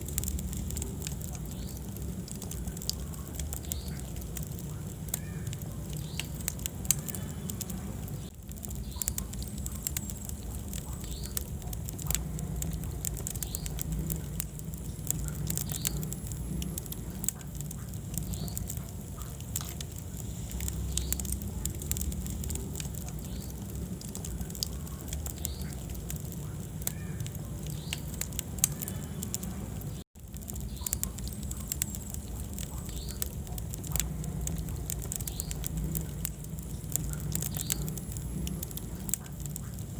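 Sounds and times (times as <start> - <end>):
steady low rumble: 0.0 - 39.9
wood fire crackling and popping: 0.0 - 39.9.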